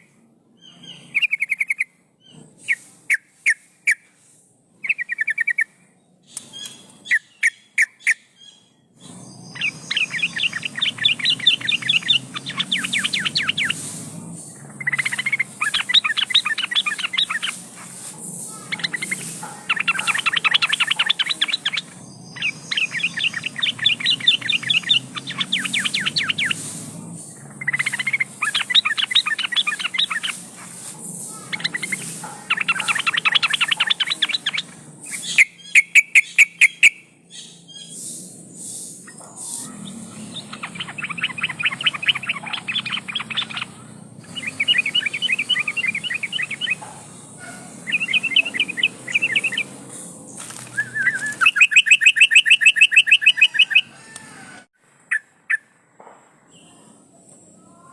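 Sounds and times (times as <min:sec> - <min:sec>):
bulbul chattering song: 0:00.0 - 0:54.2
sharp clicks: 0:06.3 - 0:07.0.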